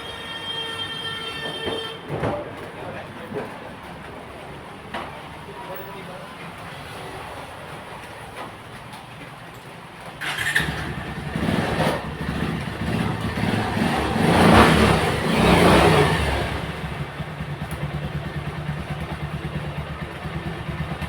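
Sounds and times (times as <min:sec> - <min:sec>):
motorcycle engine starting and revving: 0:10.2 - 0:21.0.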